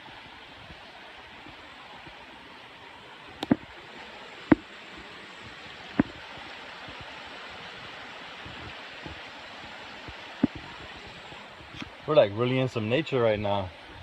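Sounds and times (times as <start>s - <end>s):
rushing flowing water: 0.0s - 14.0s.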